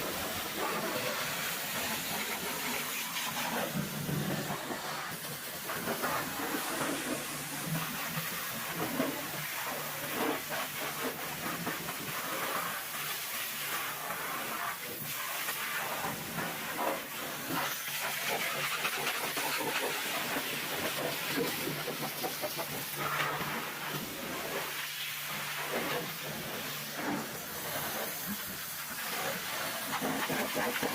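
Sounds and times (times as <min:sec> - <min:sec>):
pressure washer spraying: 0:00.0 - 0:30.9.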